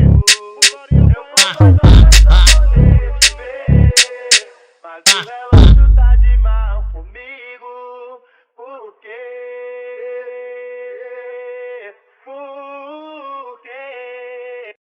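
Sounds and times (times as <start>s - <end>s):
long held vocal notes: 0.0s - 7.2s.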